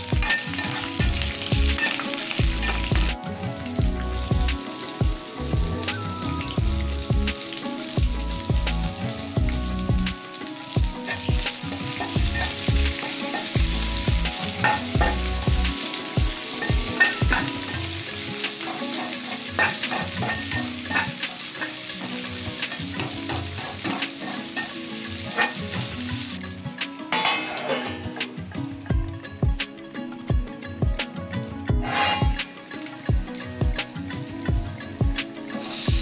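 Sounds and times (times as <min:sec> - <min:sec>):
onions sizzling in oil: 0:00.0 - 0:28.9, 0:31.8 - 0:36.0
spatula scraping a pan: 0:11.0 - 0:13.6, 0:18.6 - 0:26.0, 0:27.1 - 0:28.2, 0:31.7 - 0:32.7.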